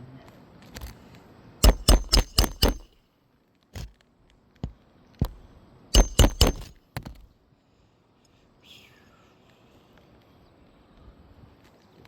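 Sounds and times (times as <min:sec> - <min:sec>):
hammer striking roofing nails: 0:01.6 - 0:02.9, 0:06.0 - 0:07.2.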